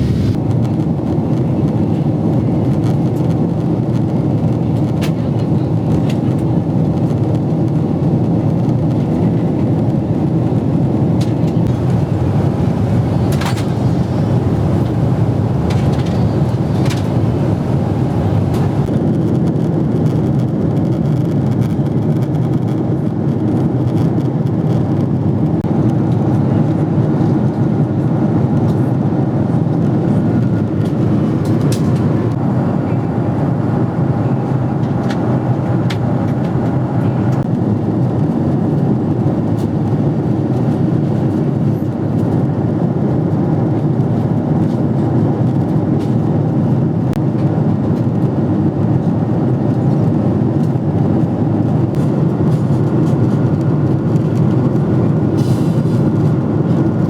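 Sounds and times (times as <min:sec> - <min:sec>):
airplane cabin engine drone: 0:00.0 - 0:19.3, 0:24.2 - 0:57.0
faint cabin clicks: 0:11.7 - 0:18.9.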